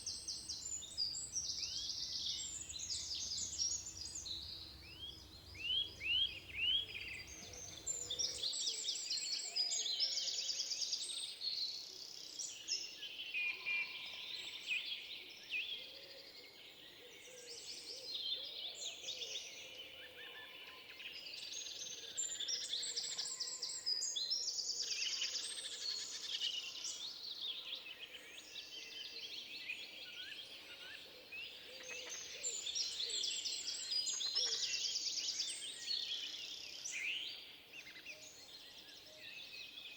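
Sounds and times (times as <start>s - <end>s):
songbirds singing: 0.0s - 16.0s, 20.2s - 39.9s.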